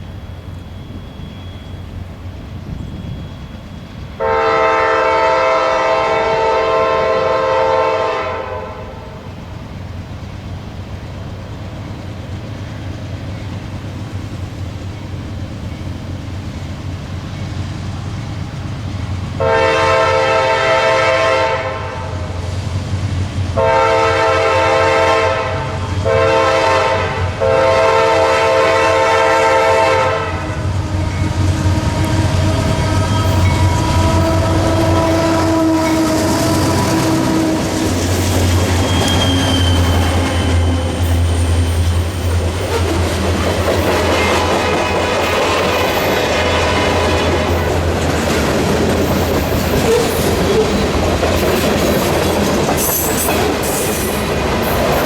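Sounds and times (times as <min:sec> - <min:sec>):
low train rumble: 0:00.0 - 0:55.0
locomotive air horn blasts: 0:04.2 - 0:09.2, 0:19.4 - 0:22.3, 0:23.6 - 0:41.3.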